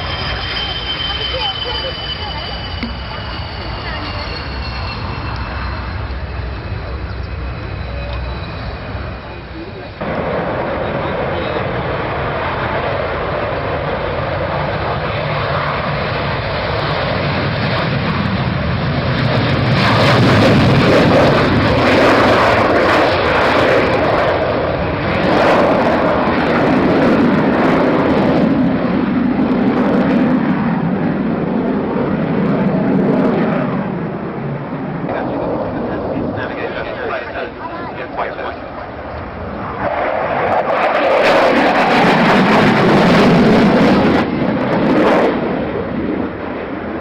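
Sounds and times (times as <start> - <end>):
plane flying past: 0.0 - 47.0.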